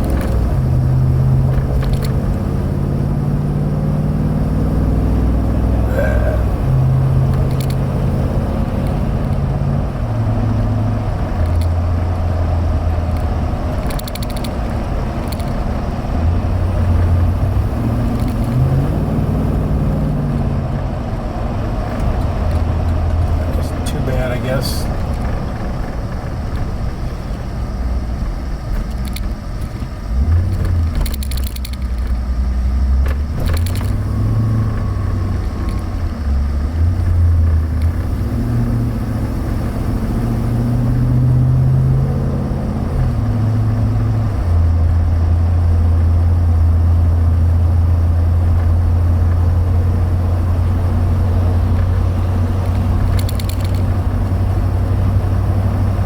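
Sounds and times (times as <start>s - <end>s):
car engine hum: 0.0s - 56.0s
road noise: 0.0s - 56.0s
short clicks or rattles: 7.3s - 7.9s, 11.4s - 11.8s, 13.1s - 15.6s, 18.1s - 18.6s, 28.8s - 32.2s, 33.0s - 34.1s, 34.8s - 36.0s, 51.8s - 54.1s.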